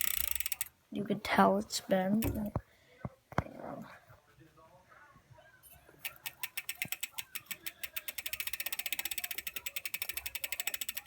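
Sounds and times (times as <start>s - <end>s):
bike hub ratchet clicking: 0.0s - 0.7s, 6.0s - 11.0s.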